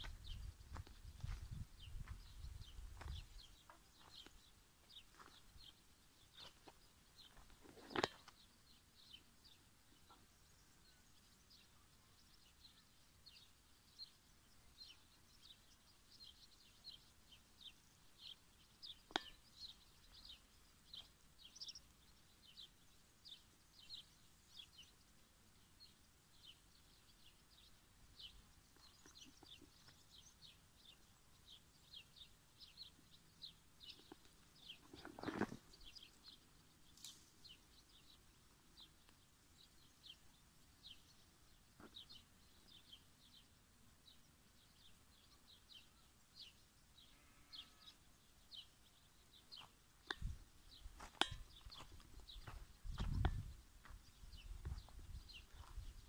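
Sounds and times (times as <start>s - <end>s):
small bird chirping: 0.0s - 56.0s.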